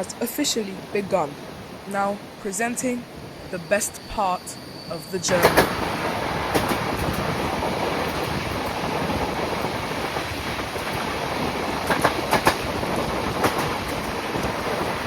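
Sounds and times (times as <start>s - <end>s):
train wheels rumbling on rails: 0.0s - 15.0s
wheels clicking over rail joints: 5.3s - 15.0s.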